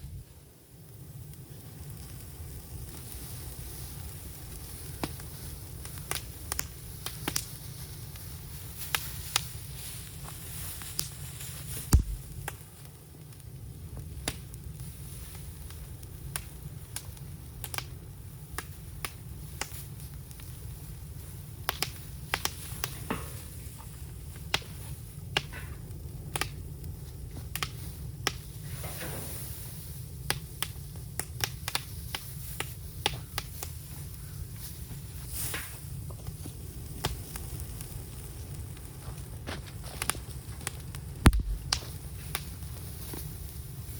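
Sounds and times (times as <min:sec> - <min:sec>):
bamboo fire crackling and popping: 0:00.0 - 0:43.9
low rumble of burning: 0:00.0 - 0:43.9
loud sharp knock: 0:12.0 - 0:12.3, 0:41.3 - 0:41.7.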